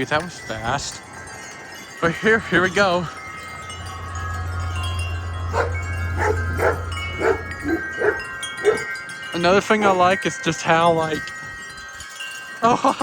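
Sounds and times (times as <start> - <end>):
wind chimes ringing: 0.0 - 13.0
dog barking: 5.5 - 8.9.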